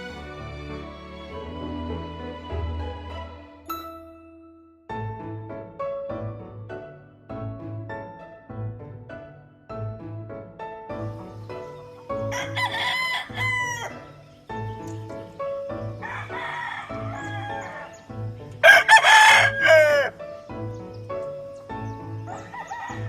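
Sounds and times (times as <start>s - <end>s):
rooster crowing: 12.3s - 14.1s, 16.0s - 20.2s, 22.3s - 23.0s.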